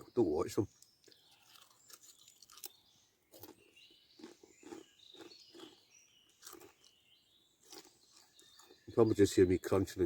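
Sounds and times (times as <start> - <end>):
crisps being chewed: 1.0 - 7.0, 7.6 - 8.9.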